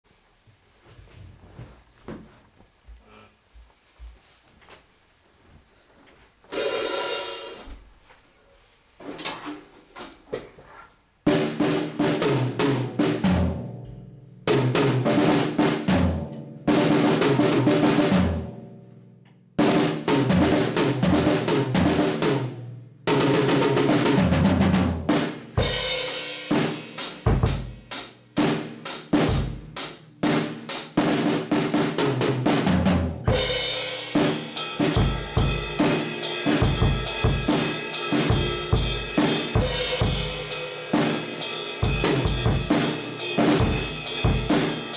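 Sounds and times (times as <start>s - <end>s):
drum beat on kick and snare: 11.3s - 13.6s, 14.5s - 18.5s, 19.6s - 22.5s, 23.1s - 44.9s
cymbals washing: 33.3s - 44.9s.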